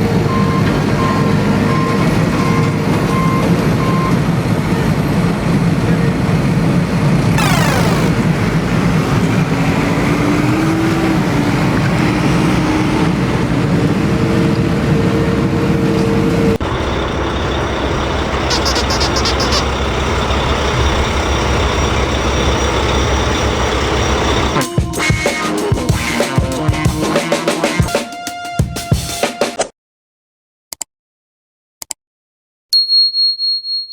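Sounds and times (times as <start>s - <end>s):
heavy vehicle engine running: 3.6s - 24.6s
engine with high whine: 6.4s - 24.6s.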